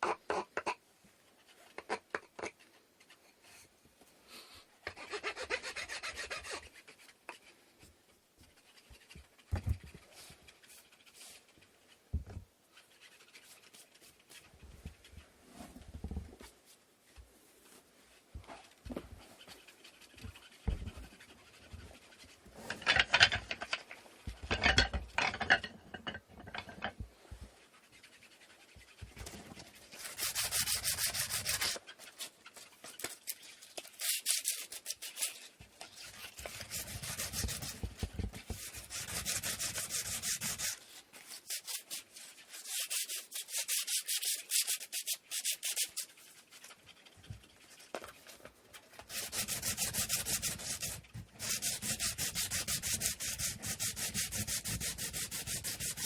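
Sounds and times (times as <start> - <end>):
sandpaper sanding wood: 5.0 - 6.8, 29.9 - 31.8, 36.1 - 46.2, 49.1 - 56.0.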